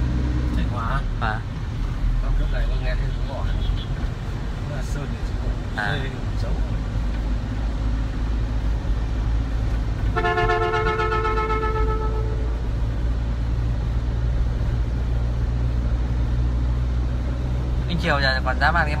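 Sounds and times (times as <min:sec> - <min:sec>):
vehicle rumble on road: 0:00.0 - 0:19.0
vehicle horn honk: 0:10.1 - 0:12.5.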